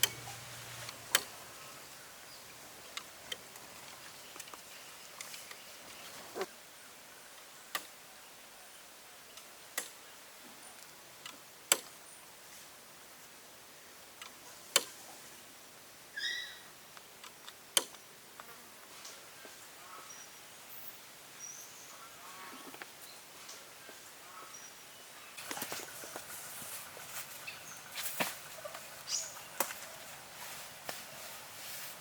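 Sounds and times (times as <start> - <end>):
faint steady hiss: 0.0 - 32.0.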